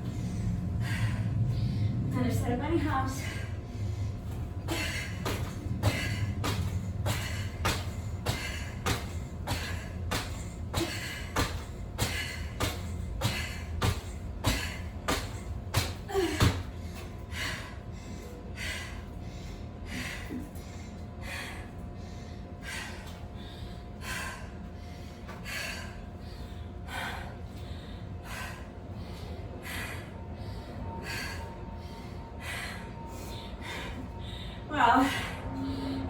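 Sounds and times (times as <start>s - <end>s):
person breathing hard: 0.0s - 2.2s, 2.8s - 36.0s
feet landing thuds: 4.8s - 16.7s.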